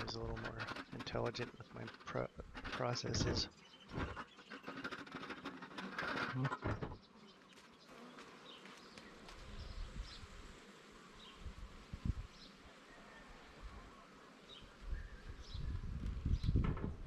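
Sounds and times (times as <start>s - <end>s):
rustling and knocking handling noise: 0.0s - 7.7s, 16.4s - 17.0s
honeybees buzzing: 0.0s - 17.0s.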